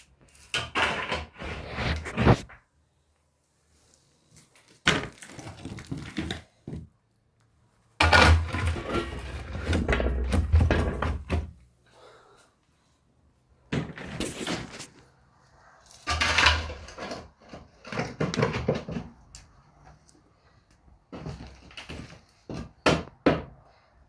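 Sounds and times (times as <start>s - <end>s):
knocks and handling noises: 4.4s - 7.0s.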